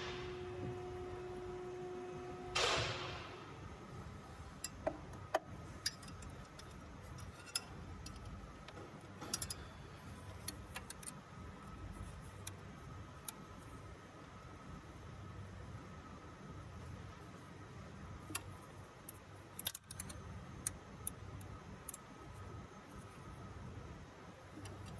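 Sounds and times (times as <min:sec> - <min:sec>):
metallic clicks of tools: 0:05.8 - 0:09.7, 0:10.3 - 0:11.2, 0:18.3 - 0:22.1.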